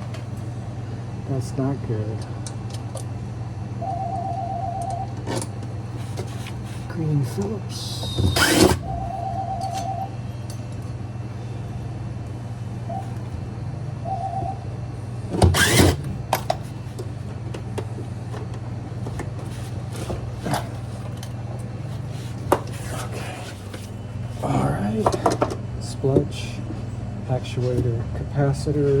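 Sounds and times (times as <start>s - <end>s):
steady low hum: 0.0s - 29.0s
tools and metal parts clicking: 15.6s - 16.0s.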